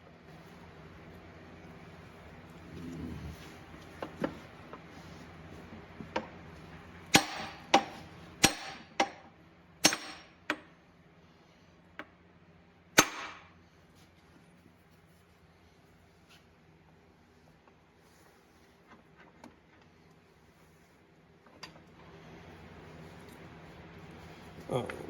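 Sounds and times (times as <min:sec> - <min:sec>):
hammer striking steel: 0:07.1 - 0:09.2, 0:09.8 - 0:10.4, 0:13.0 - 0:13.4.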